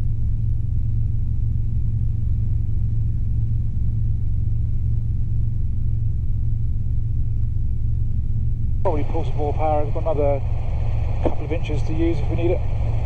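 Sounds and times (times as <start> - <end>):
helicopter engine and rotors droning: 8.8 - 13.0.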